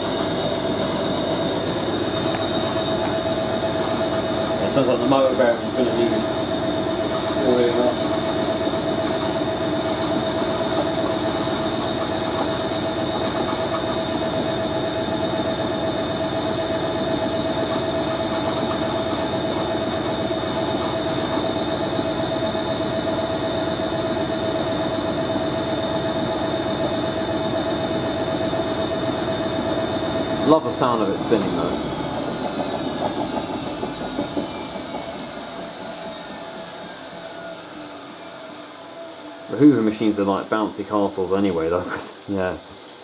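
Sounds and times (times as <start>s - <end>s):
high whine: 0.0s - 42.8s
washing machine spinning: 0.0s - 43.0s.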